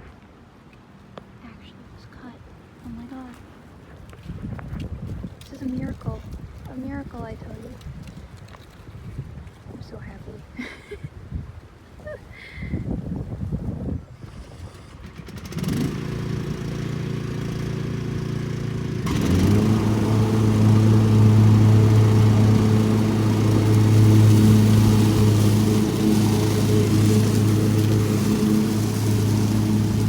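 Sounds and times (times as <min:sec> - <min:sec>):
riding lawn mower engine: 0:14.1 - 0:30.0.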